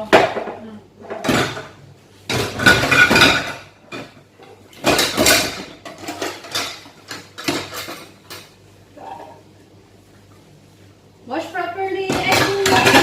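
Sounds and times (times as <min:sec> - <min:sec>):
plates and cutlery clattering: 0:00.2 - 0:09.4, 0:12.1 - 0:13.0.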